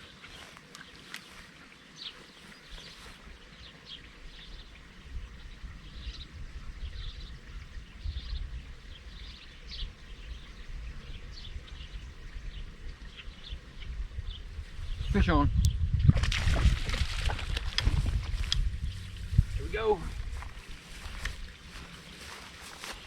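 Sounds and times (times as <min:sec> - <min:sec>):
small birds chirping: 0:00.0 - 0:15.9, 0:16.6 - 0:23.0
low uneven rumble: 0:16.6 - 0:23.0.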